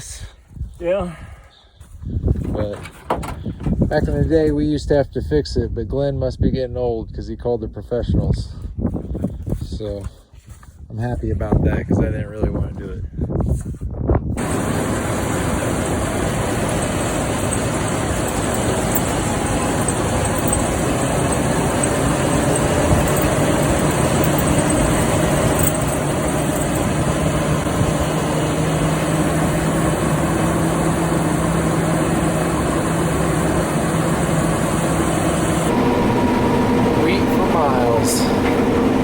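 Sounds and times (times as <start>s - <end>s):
farm machinery engine running: 14.4s - 39.0s.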